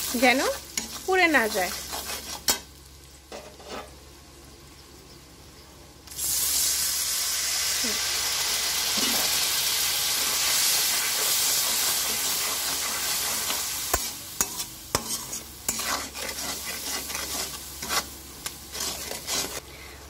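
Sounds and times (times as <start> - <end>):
paste sizzling in oil: 0.0 - 4.0, 6.1 - 19.7
spatula scraping metal pan: 0.8 - 2.6, 3.4 - 3.9, 10.9 - 19.6.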